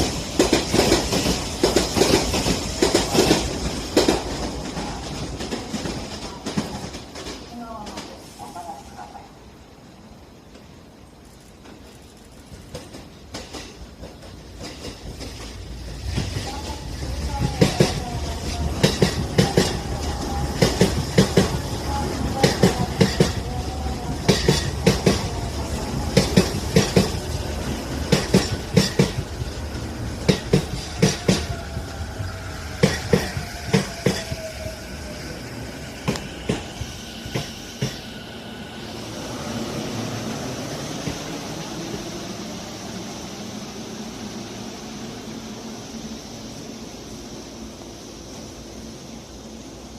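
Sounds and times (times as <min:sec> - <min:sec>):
train wheels clacking over rail joints: 0:00.0 - 0:08.0, 0:11.6 - 0:16.7, 0:17.4 - 0:21.7, 0:22.3 - 0:23.5, 0:24.2 - 0:25.3, 0:26.1 - 0:31.8.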